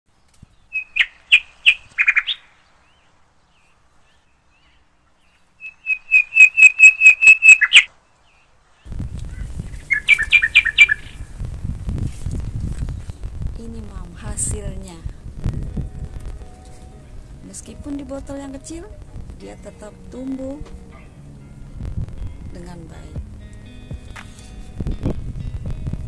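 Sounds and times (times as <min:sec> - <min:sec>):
small bird chirping: 0:00.2 - 0:11.3
low background rumble: 0:08.9 - 0:26.0.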